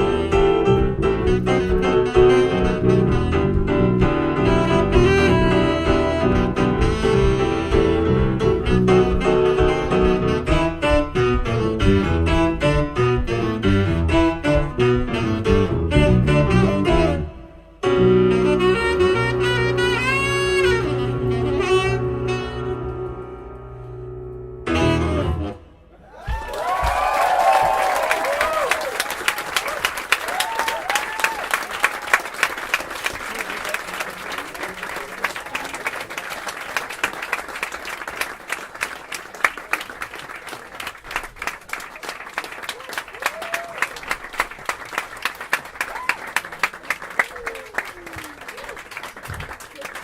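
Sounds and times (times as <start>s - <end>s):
double bass: 0.0s - 25.6s
saxophone: 0.0s - 25.9s
piano: 0.0s - 33.4s
drum beat: 26.3s - 27.8s.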